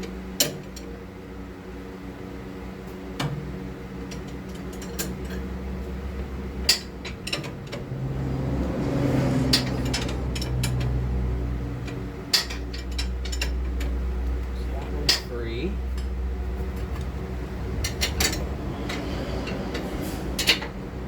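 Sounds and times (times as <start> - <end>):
steady low hum: 0.0 - 21.0
pry bar clinking on metal: 15.0 - 16.1.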